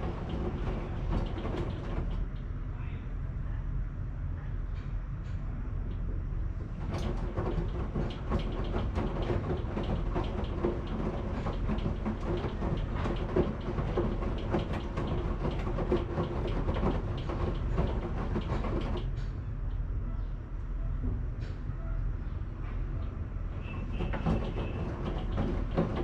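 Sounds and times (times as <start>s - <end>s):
clicking and rattling: 0.0s - 2.4s, 6.6s - 19.3s, 23.0s - 26.0s
washing machine rumbling: 0.0s - 2.7s, 6.0s - 26.0s.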